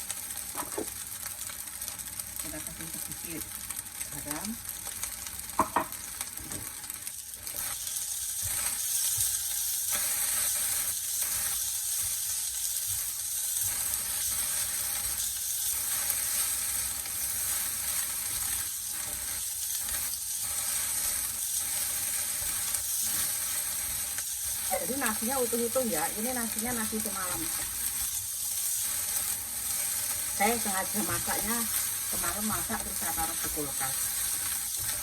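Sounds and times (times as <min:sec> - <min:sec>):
rice sizzling in a hot pan: 0:00.0 - 0:35.0
spatula scraping and knocking pan: 0:00.5 - 0:01.0, 0:05.6 - 0:06.7, 0:07.5 - 0:15.2, 0:17.5 - 0:35.0.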